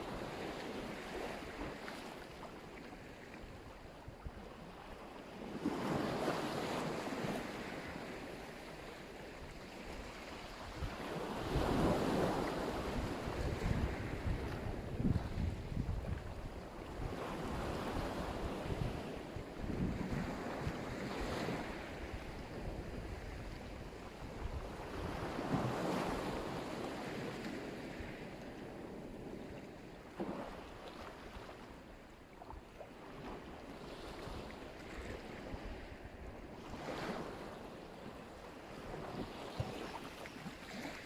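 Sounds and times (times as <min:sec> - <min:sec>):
waves breaking on shore: 0:00.0 - 0:41.0
wind rumbling on microphone: 0:09.9 - 0:29.6.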